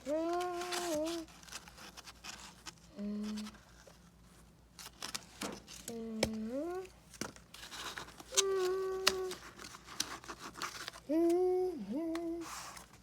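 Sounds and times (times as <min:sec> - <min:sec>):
cardboard crinkling: 0:00.0 - 0:11.2, 0:12.1 - 0:13.0
person holding a sung note: 0:08.3 - 0:09.4, 0:11.1 - 0:12.8.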